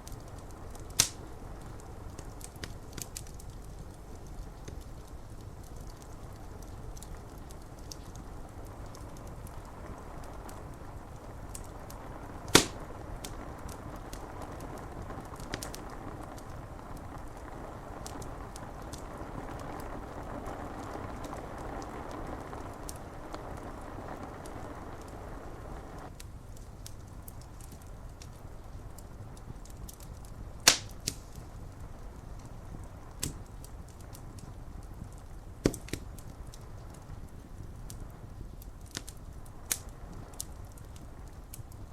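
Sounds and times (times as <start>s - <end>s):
fire popping: 0.0s - 41.9s
wood fire crackling: 0.0s - 41.9s
rain on window glass: 0.2s - 26.1s.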